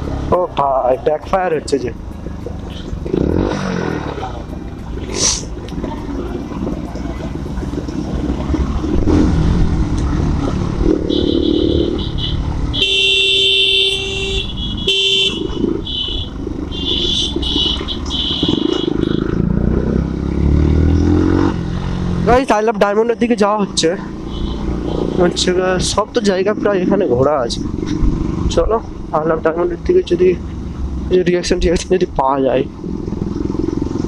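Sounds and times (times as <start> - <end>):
motorcycle engines running: 0.0 - 34.0
road noise: 0.0 - 34.0
vehicle horns honking: 11.0 - 19.5, 24.2 - 25.4.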